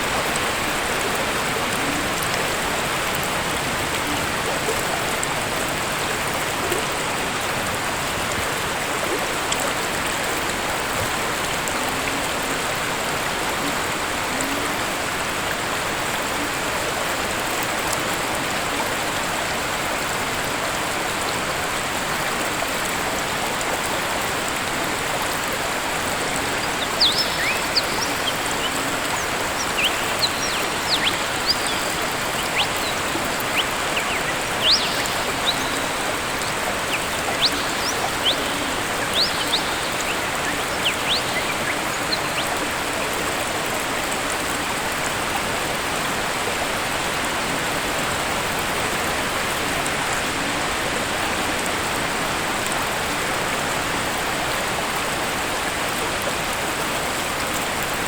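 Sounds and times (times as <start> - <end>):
waterfall rushing: 20.0 - 51.2
bird chirping: 26.2 - 42.8.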